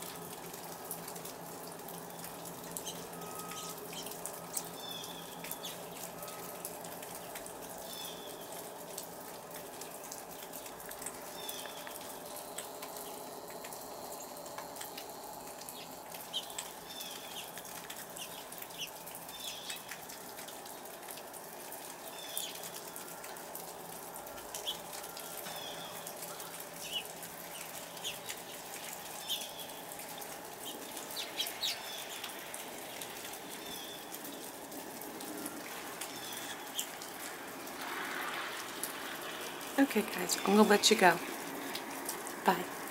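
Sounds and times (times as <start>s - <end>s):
small birds chirping: 2.1s - 8.6s, 10.0s - 14.5s, 15.5s - 20.8s, 22.0s - 22.8s, 24.5s - 34.6s, 36.0s - 37.2s.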